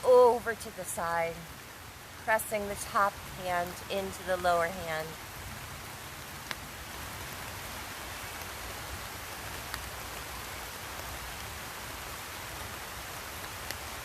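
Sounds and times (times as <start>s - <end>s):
steady rain hiss: 0.0s - 14.0s
single raindrops clicking: 6.4s - 6.6s, 9.5s - 10.3s, 13.4s - 14.0s.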